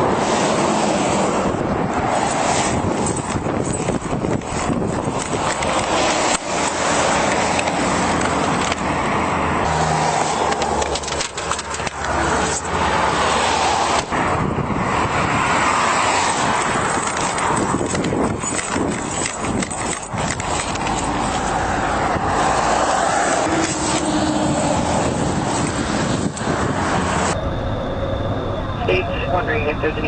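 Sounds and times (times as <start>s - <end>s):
road and wind noise: 0.0s - 30.0s
knocks and clicks: 16.5s - 21.4s.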